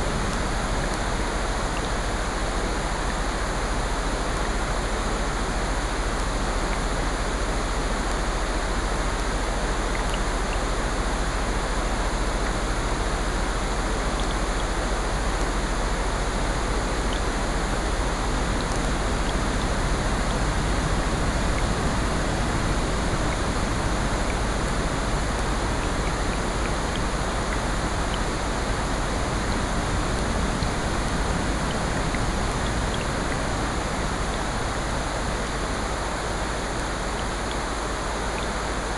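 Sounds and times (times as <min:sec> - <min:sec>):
steady rain: 0:00.0 - 0:38.9
faint ticks: 0:09.9 - 0:10.7
ocean surf: 0:14.7 - 0:38.9.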